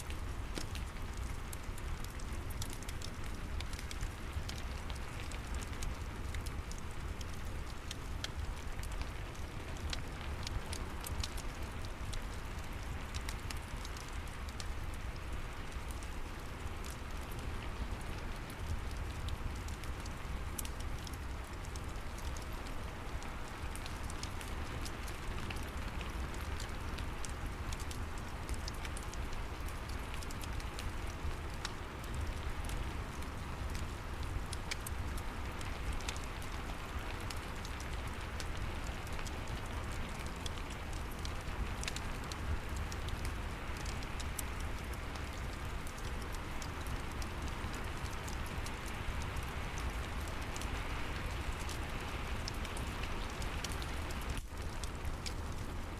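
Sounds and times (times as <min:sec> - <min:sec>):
steady rain falling: 0:00.0 - 0:55.9
wood fire crackling: 0:00.0 - 0:55.9.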